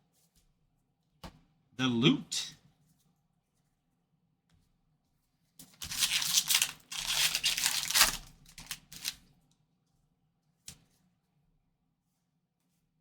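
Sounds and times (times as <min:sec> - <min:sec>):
foil wrapper tearing and crinkling: 0:05.6 - 0:09.3.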